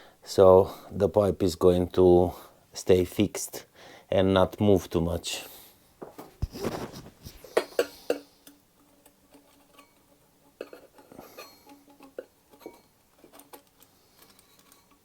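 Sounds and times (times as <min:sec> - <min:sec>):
metal parts clinking: 0:08.4 - 0:15.0.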